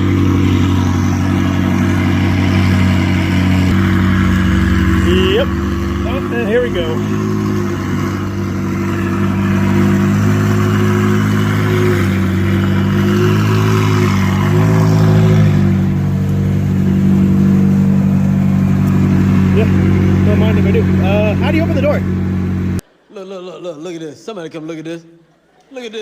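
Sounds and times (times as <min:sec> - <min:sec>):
sports car engine idling: 0:00.0 - 0:22.8.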